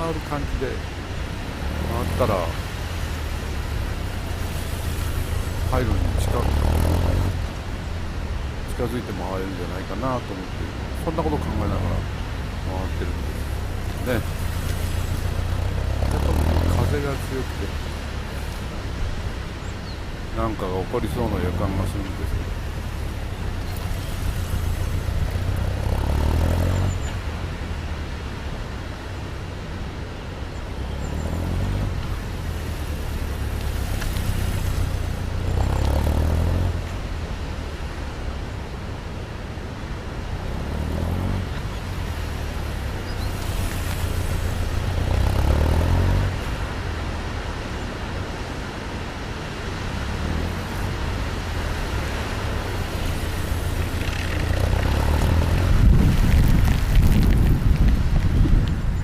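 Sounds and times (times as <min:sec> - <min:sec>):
motorcycle engine: 0:00.8 - 0:08.9, 0:11.6 - 0:20.4, 0:21.1 - 0:28.9, 0:30.5 - 0:38.9, 0:39.8 - 0:48.2, 0:49.4 - 0:58.6
wind noise: 0:21.8 - 0:59.0.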